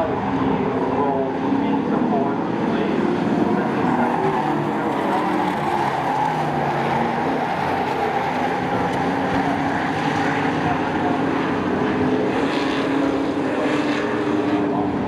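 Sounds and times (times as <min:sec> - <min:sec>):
racing truck engines: 0:00.0 - 0:15.0.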